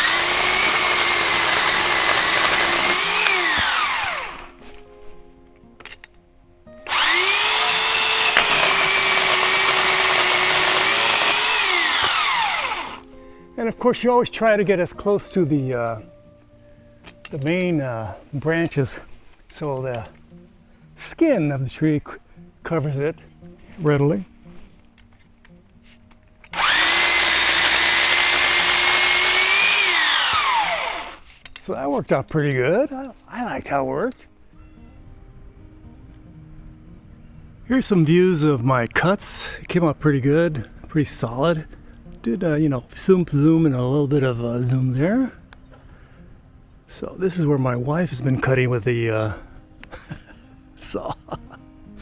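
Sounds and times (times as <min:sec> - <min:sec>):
electric chainsaw motor: 0:00.0 - 0:04.6, 0:06.8 - 0:13.1, 0:26.5 - 0:31.3.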